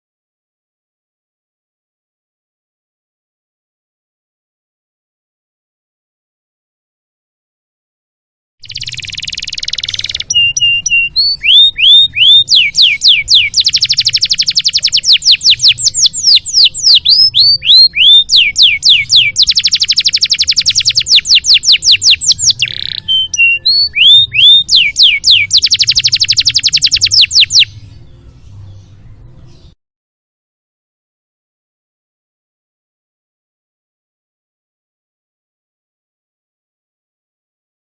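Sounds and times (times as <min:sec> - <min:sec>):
canary singing: 0:08.6 - 0:29.8.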